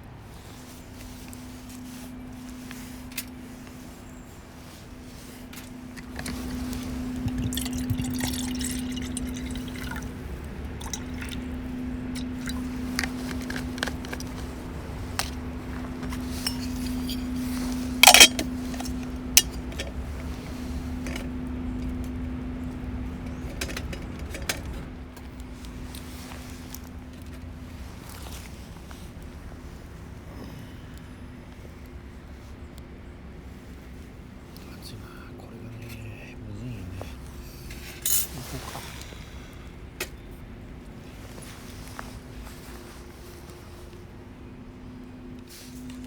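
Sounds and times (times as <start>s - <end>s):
liquid pouring and dripping: 6.0s - 13.6s.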